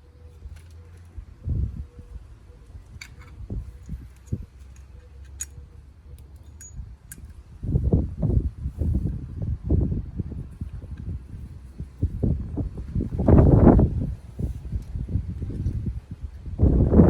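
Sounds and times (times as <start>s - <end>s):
metallic clicks of small parts: 2.6s - 7.5s.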